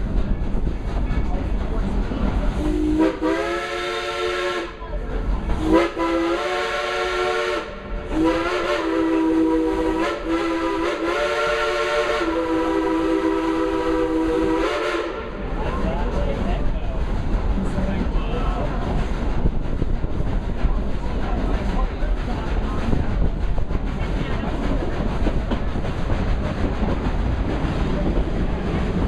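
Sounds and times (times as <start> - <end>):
train hiss and rumble: 0.0 - 29.0.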